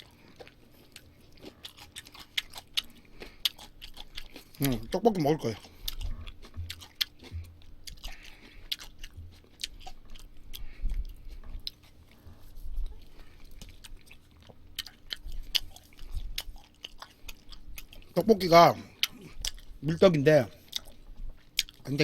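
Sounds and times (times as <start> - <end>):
chewing with wet mouth smacks: 0.0 - 22.0.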